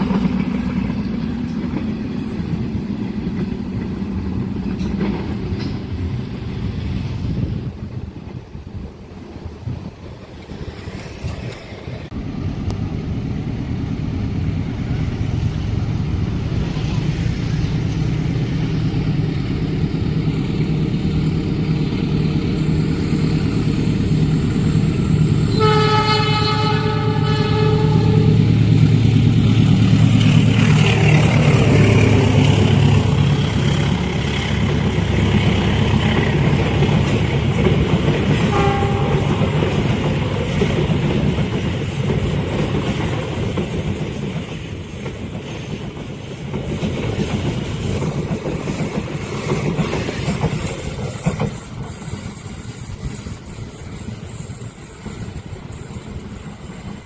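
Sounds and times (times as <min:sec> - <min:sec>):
train passing rumble: 0:00.0 - 0:57.0
locomotive horn: 0:25.4 - 0:28.6, 0:38.4 - 0:39.6.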